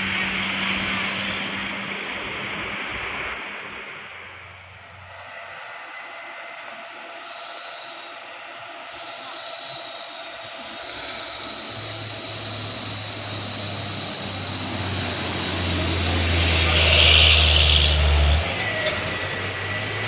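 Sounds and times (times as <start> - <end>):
heavy truck engine running: 0.0 - 20.0.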